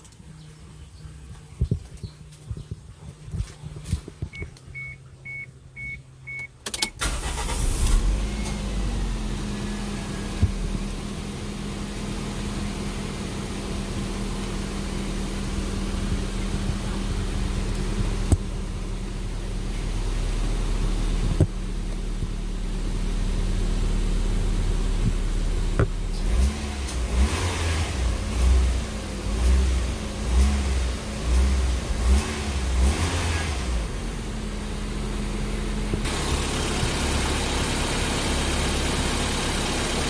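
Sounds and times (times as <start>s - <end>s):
car engine starting and running: 0.0s - 40.0s
car electronic chime beeps: 4.4s - 7.0s.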